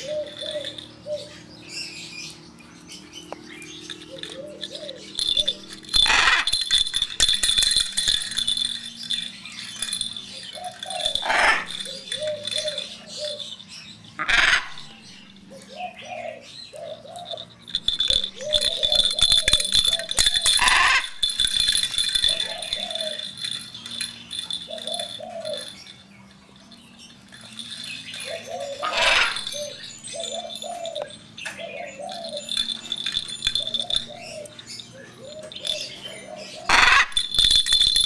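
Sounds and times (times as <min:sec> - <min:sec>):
jingling bell rattle toy: 0:00.0 - 0:38.0
parrot making low calls: 0:06.0 - 0:06.6, 0:11.0 - 0:11.9, 0:14.2 - 0:14.9, 0:20.5 - 0:21.2, 0:28.8 - 0:29.7, 0:36.7 - 0:37.2.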